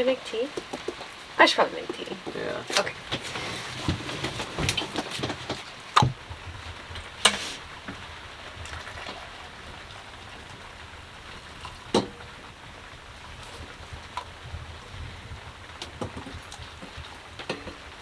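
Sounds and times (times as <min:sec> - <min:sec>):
heavy rain on cabin roof: 0:00.0 - 0:18.0
sharp knocks and clatters: 0:00.6 - 0:01.2, 0:11.6 - 0:12.4, 0:15.8 - 0:17.9.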